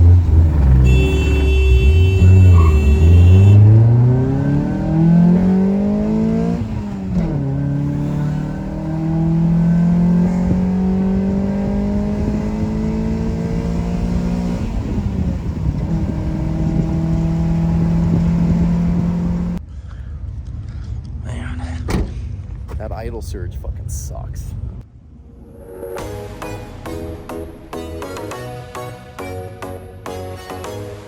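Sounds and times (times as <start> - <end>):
car engine accelerating through gears: 0.0 - 19.6.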